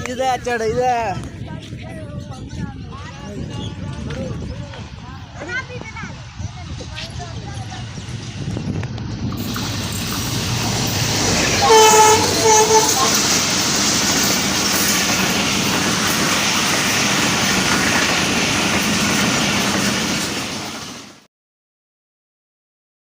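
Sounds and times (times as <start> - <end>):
train wheels on rail: 3.7 - 21.3
locomotive horn blasts: 11.2 - 13.4.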